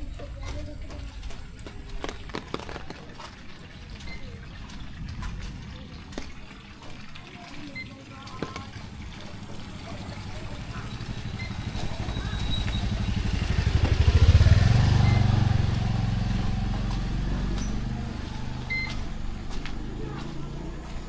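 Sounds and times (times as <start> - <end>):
motorcycle passing by: 8.6 - 21.0.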